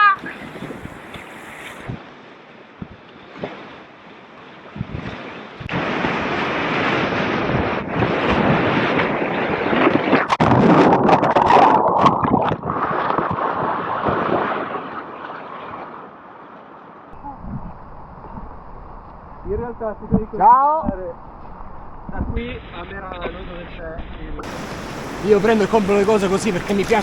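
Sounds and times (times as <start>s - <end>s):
rushing whitewater: 24.4s - 27.0s.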